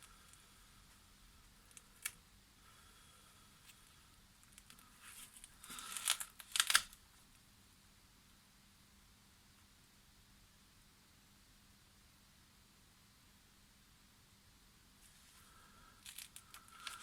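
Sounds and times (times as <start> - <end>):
crinkling rustling handling noise: 4.5 - 7.0, 16.0 - 17.0.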